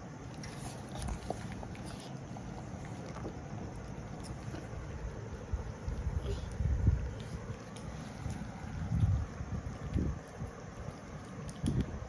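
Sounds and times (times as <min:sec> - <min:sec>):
low rumbles: 0:00.9 - 0:12.0
wind buffeting microphone: 0:04.7 - 0:12.0.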